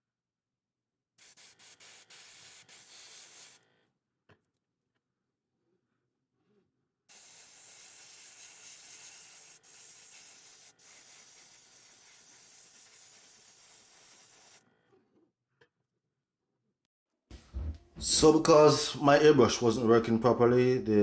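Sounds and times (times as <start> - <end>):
airbrush hissing: 1.2 - 3.6, 7.1 - 14.6.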